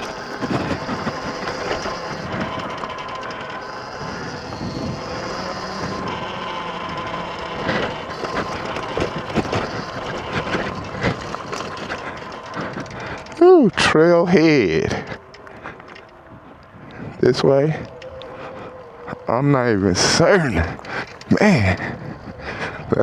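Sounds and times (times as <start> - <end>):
bike knocking over bumps: 0.0 - 13.4
dirt bike engine running: 0.0 - 23.0.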